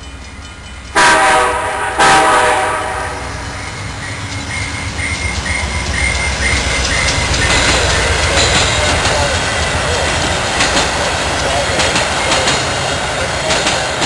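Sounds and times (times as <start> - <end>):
train rumbling past: 0.0 - 14.0
wheels clicking over rail joints: 3.7 - 14.0.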